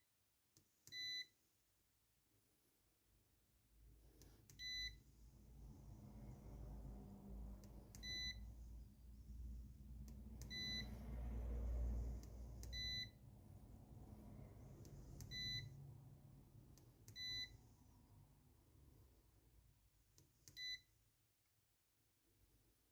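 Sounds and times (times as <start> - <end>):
click: 7.6 - 8.1, 10.0 - 10.6, 12.2 - 12.8, 14.8 - 15.4, 16.7 - 17.2
multimeter beeping: 10.4 - 10.9, 12.6 - 13.2, 15.2 - 15.8.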